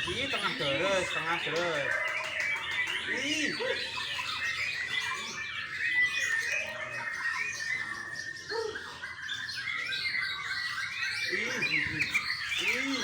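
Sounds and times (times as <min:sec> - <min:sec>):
birds whistling and chirping: 0:00.0 - 0:13.0.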